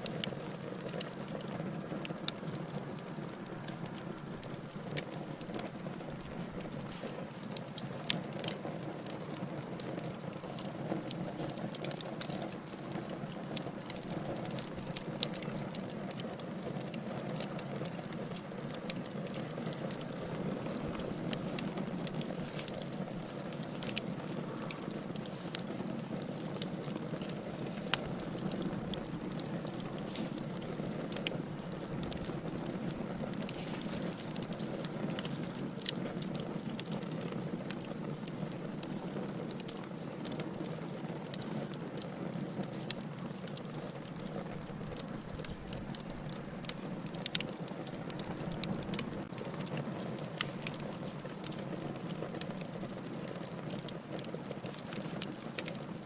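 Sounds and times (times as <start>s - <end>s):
wood fire crackling and popping: 0.0s - 56.0s
fire low rush: 26.0s - 36.4s.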